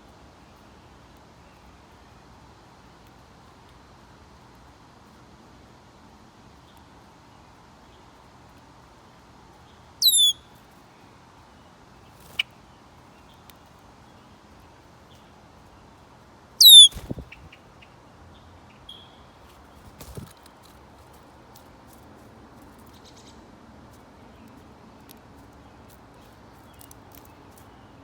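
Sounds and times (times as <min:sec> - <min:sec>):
songbird calls: 0:10.0 - 0:10.5, 0:16.6 - 0:18.0, 0:18.7 - 0:19.3.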